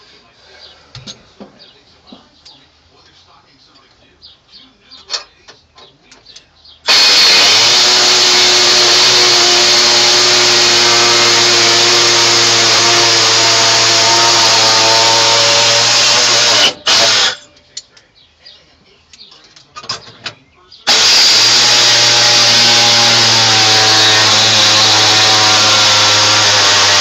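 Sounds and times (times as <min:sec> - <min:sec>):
air tool hissing whine: 0:06.9 - 0:17.4, 0:20.9 - 0:27.0.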